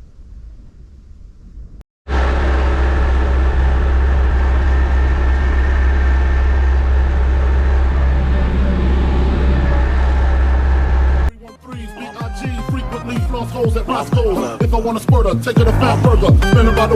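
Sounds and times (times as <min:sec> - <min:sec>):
tractor engine running: 0:02.1 - 0:11.3.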